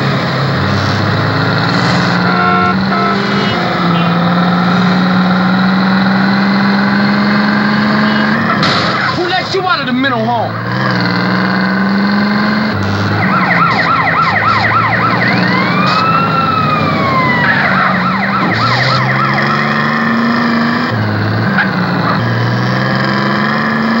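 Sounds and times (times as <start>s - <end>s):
vehicle engine shifting gears: 0.0s - 24.0s
siren yelping and wailing: 1.0s - 5.8s, 12.4s - 22.6s.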